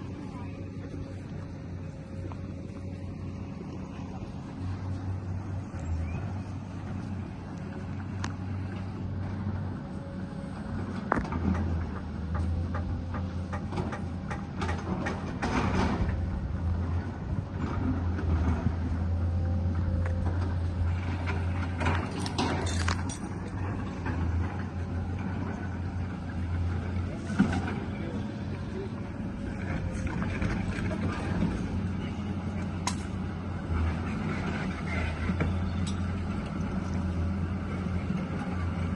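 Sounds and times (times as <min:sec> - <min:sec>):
excavator diesel engine running: 0:00.0 - 0:38.9
metallic clanks and knocks: 0:21.3 - 0:24.6.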